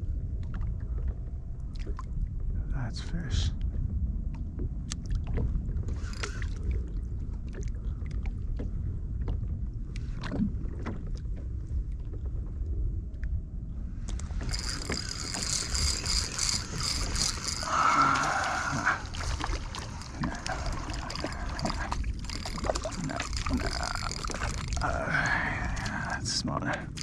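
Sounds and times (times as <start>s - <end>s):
low water rumble: 0.0s - 27.0s
hissing rush: 14.5s - 26.0s.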